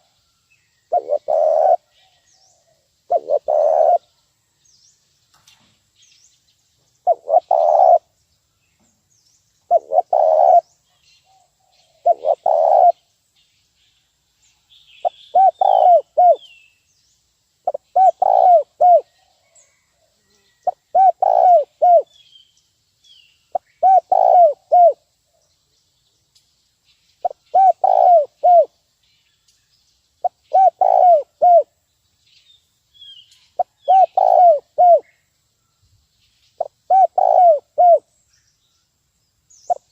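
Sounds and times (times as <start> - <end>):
high chirps of small birds: 0.0 - 39.9
dove cooing: 0.9 - 4.1, 7.0 - 8.1, 9.7 - 10.7, 11.3 - 13.0, 15.0 - 16.5, 17.7 - 19.9, 20.6 - 22.2, 23.5 - 25.0, 27.2 - 28.7, 30.2 - 31.7, 33.6 - 35.1, 36.6 - 38.1.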